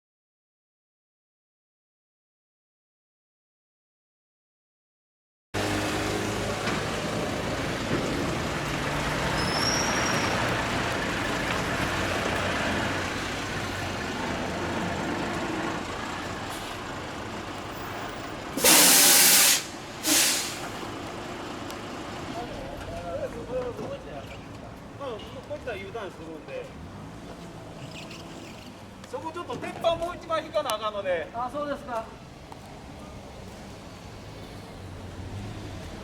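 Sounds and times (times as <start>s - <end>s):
truck engine running: 5.6s - 18.7s
air brake hisses: 18.6s - 20.8s.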